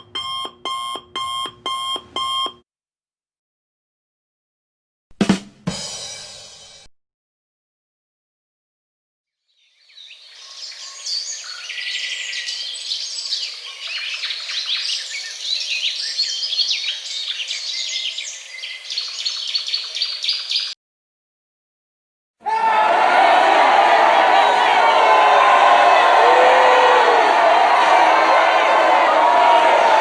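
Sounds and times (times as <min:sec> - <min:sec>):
many birds chirping: 0:09.6 - 0:20.8.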